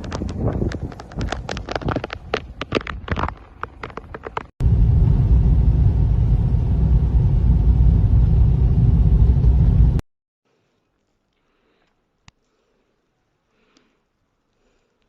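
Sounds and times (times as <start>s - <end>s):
sharp crunching clicks: 0.0s - 4.5s
loud steady low rumble: 4.6s - 10.0s.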